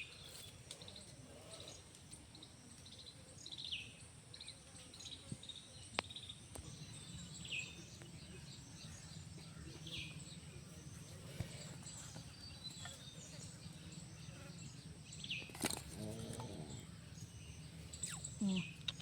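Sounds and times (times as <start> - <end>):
bird chirping: 0.0 - 19.0
steady low hum: 5.5 - 19.0.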